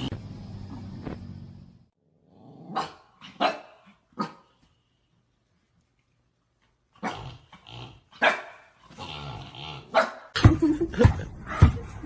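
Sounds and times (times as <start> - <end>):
dog barking: 2.7 - 4.5, 8.2 - 8.7, 9.9 - 10.4.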